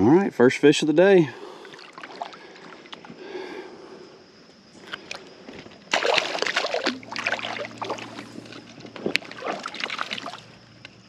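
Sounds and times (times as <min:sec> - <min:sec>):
water splashing and sloshing: 0:01.4 - 0:03.2, 0:04.8 - 0:10.6.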